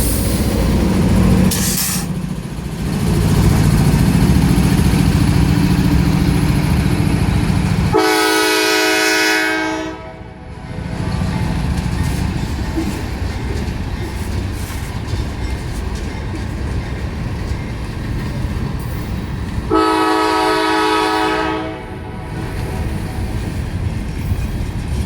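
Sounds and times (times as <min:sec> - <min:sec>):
freight train wheels clattering: 0:00.0 - 0:09.2, 0:10.6 - 0:25.0
train horn blast: 0:07.9 - 0:10.6, 0:19.7 - 0:23.3.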